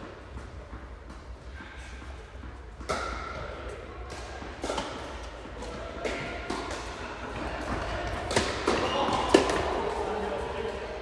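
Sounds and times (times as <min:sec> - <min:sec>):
tennis ball bouncing on court: 0:02.3 - 0:09.6
tennis ball struck by rackets: 0:02.7 - 0:09.6.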